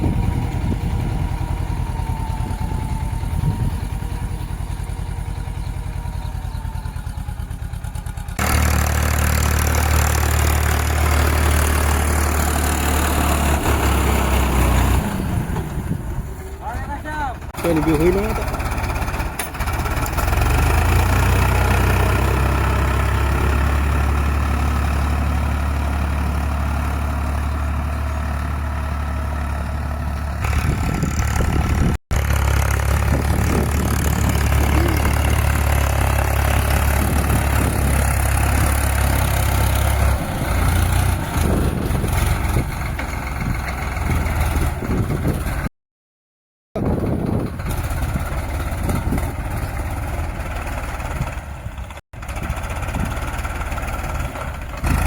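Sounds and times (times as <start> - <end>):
tractor engine droning: 0.0 - 45.7, 46.8 - 55.0.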